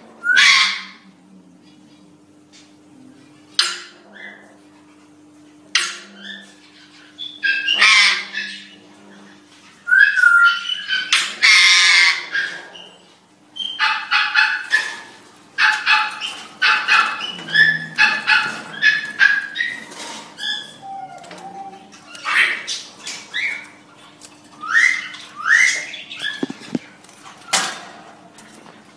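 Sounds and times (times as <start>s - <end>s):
birds chirping and whistling: 0.2s - 1.0s, 5.8s - 8.9s, 9.7s - 15.0s, 15.7s - 27.8s
birds squawking and screeching: 0.2s - 1.0s, 3.6s - 4.7s, 5.7s - 28.8s.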